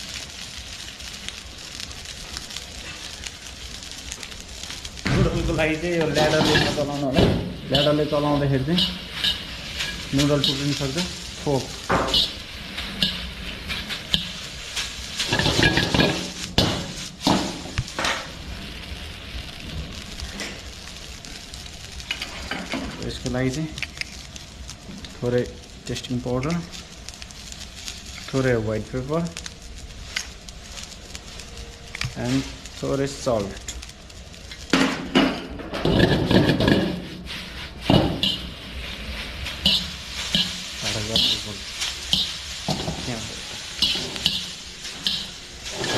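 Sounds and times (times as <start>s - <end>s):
low sizzle: 0.0s - 45.9s
metal utensil scraping pan: 6.1s - 18.2s, 35.3s - 45.9s.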